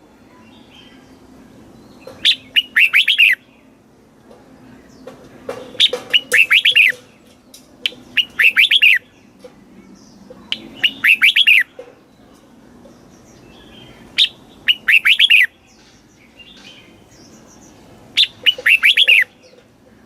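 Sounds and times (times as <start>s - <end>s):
bird singing whistled notes: 1.8s - 3.7s, 5.7s - 7.1s, 7.8s - 9.4s, 10.0s - 11.7s, 13.2s - 19.6s.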